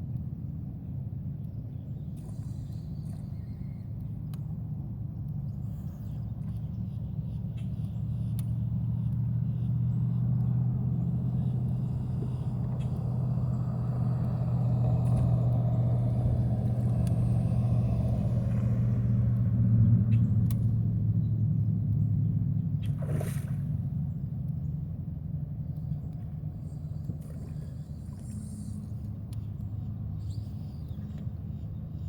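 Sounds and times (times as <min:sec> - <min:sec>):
motor running with low drone: 0:00.0 - 0:32.0.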